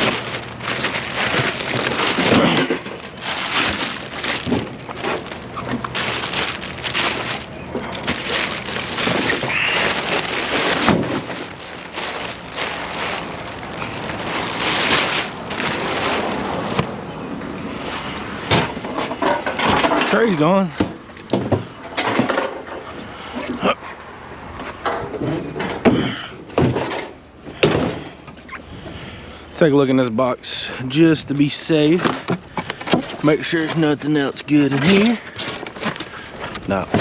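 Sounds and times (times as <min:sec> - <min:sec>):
plastic bag rustling: 0:00.0 - 0:16.8.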